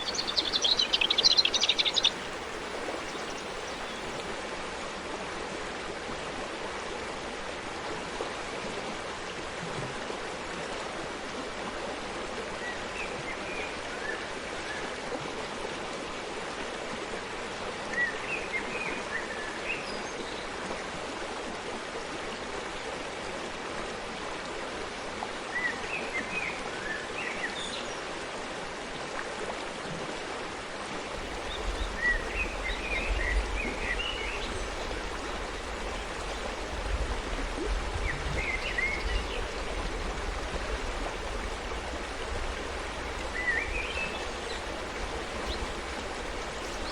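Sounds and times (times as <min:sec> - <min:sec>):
birds chirping: 0:00.0 - 0:04.4, 0:31.2 - 0:46.9
stream flowing: 0:00.0 - 0:18.0, 0:30.4 - 0:46.9.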